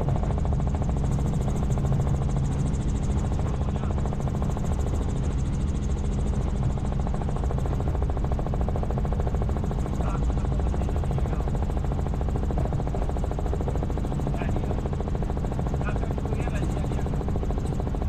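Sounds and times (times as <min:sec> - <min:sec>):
helicopter rotor drone: 0:00.0 - 0:18.0.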